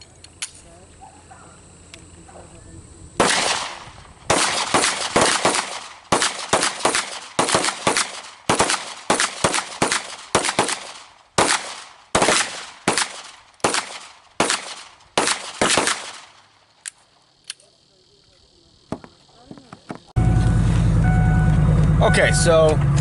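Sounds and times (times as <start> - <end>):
rapid gunfire: 3.2 - 16.4.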